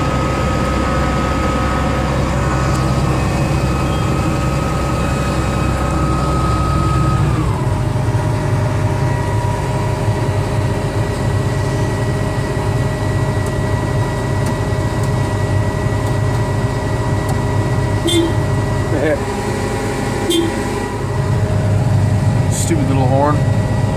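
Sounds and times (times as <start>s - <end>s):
diesel engine whining: 0.0s - 23.9s
short beep: 18.1s - 18.4s, 20.3s - 20.6s.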